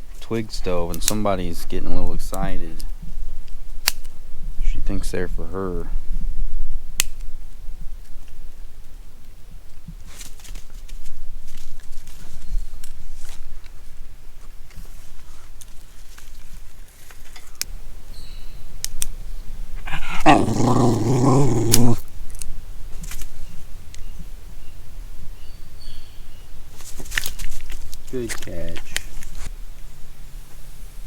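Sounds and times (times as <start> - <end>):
sticks snapping: 3.8 - 4.1
dog growling playfully: 19.8 - 22.0.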